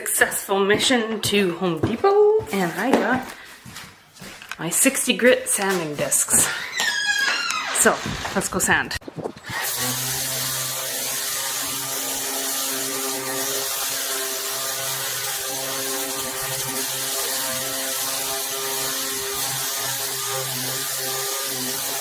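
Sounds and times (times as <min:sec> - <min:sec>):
electric sander humming: 0:09.4 - 0:22.0.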